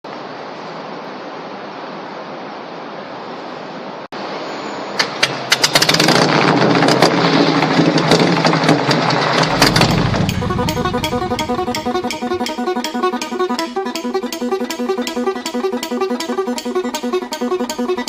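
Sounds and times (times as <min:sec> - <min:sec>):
engine starter clicks: 0:05.0 - 0:18.0
engine running: 0:05.2 - 0:18.0.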